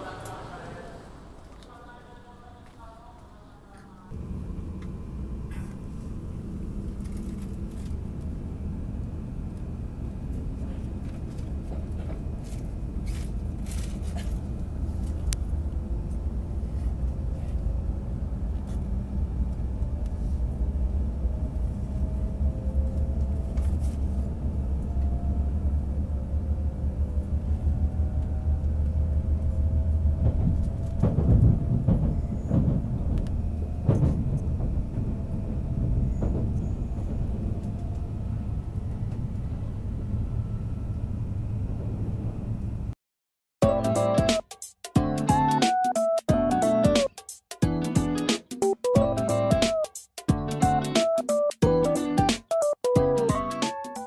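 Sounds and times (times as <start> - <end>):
passing train rushing: 0.0 - 2.6, 4.1 - 43.0
train cabin low rumble: 0.0 - 43.0, 48.9 - 51.0.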